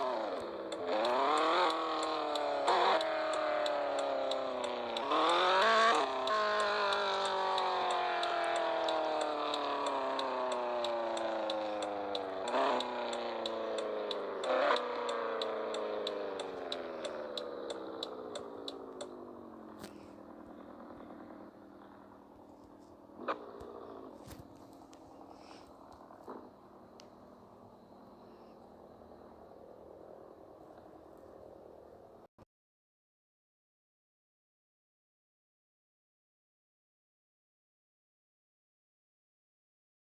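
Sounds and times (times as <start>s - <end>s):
light ticking: 0.0s - 19.2s
car engine revving: 0.0s - 32.1s.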